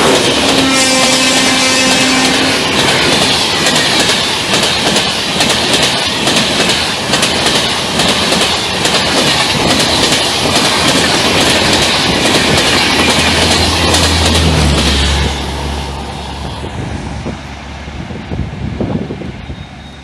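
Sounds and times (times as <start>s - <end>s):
train wheels clattering over rail joints: 0.0s - 15.4s.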